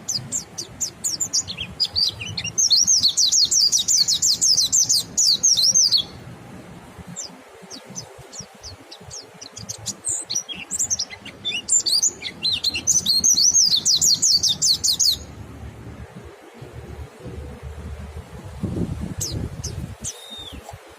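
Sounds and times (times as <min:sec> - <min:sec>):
birds twittering: 0:00.0 - 0:06.2, 0:07.0 - 0:15.5, 0:19.0 - 0:20.9.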